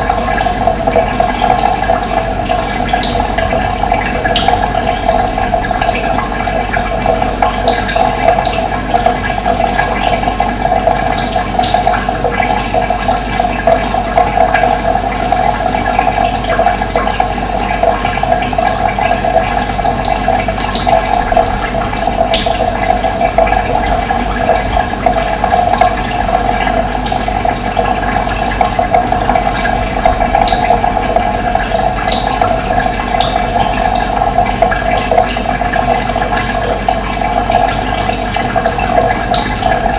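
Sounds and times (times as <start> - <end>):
water rushing: 20.6 - 39.9.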